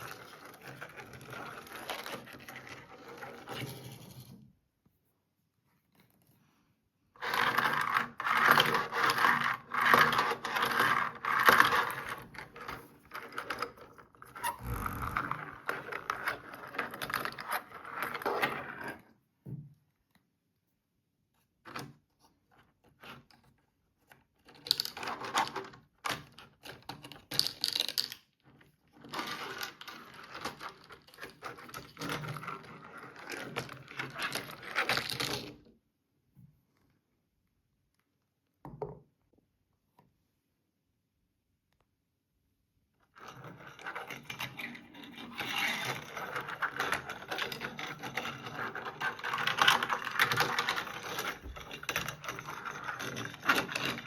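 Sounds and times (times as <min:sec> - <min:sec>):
plastic toy parts rattling: 0:43.3 - 0:54.0.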